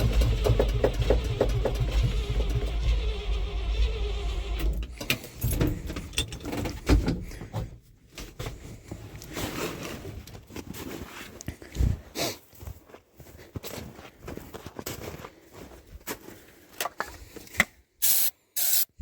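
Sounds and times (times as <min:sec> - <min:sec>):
knocks clicks and rustles of handling: 0:00.0 - 0:03.4, 0:04.6 - 0:11.7.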